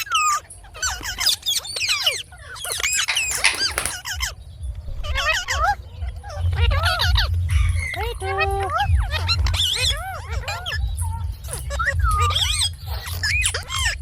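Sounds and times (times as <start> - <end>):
parakeet chattering: 2.7 - 4.3.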